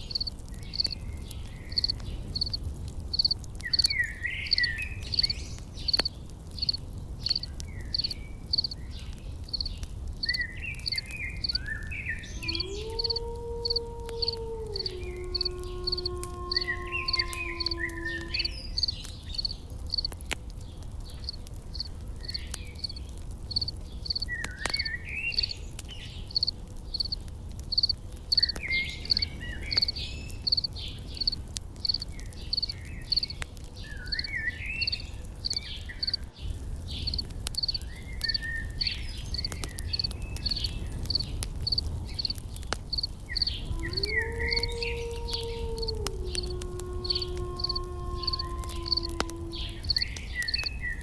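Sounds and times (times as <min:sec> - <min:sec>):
campfire crackle: 0:00.0 - 0:51.0
songbird singing: 0:00.0 - 0:51.0
insect chirping: 0:01.7 - 0:03.9, 0:04.5 - 0:05.3, 0:05.9 - 0:08.8, 0:09.5 - 0:09.7, 0:12.4 - 0:20.1, 0:21.2 - 0:21.9, 0:22.8 - 0:24.3, 0:26.3 - 0:33.3, 0:34.1 - 0:36.2, 0:37.1 - 0:38.4, 0:39.3 - 0:50.8.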